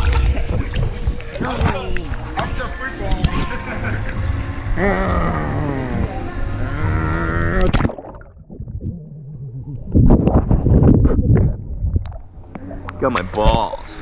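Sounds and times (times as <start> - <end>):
person's drawn-out vocal call: 4.8 - 7.7
jostling noise: 8.4 - 12.4.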